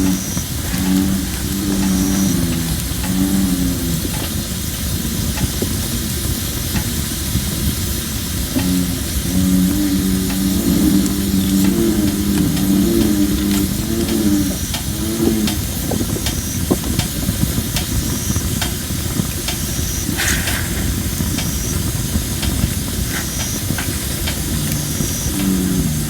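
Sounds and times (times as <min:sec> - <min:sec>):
bullfrog low call: 0:00.0 - 0:05.5, 0:08.4 - 0:16.8, 0:20.0 - 0:26.0
campfire hissing: 0:00.0 - 0:26.0
fire crackles and pops: 0:00.0 - 0:26.0.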